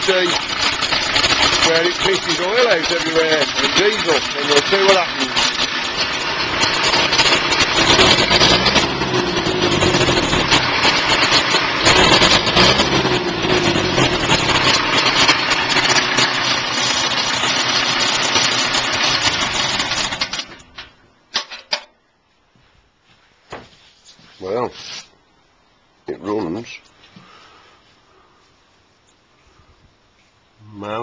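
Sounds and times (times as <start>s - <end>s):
tractor diesel engine running: 0.0s - 20.9s.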